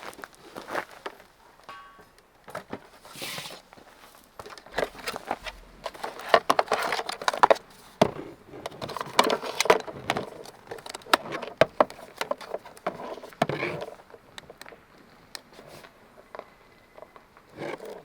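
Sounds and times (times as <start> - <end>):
rustling: 2.0 - 14.2
sharp clicks and knocks: 4.6 - 12.9.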